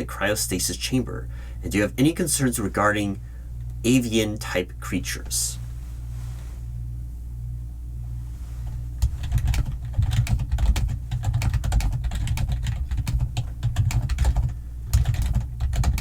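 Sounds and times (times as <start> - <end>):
steady low hum: 0.0 - 16.0
typing on computer keyboard: 9.0 - 16.0.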